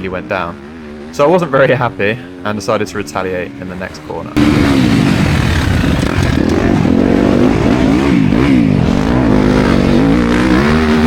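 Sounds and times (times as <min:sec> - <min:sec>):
dirt bike engine revving: 0:02.3 - 0:11.0.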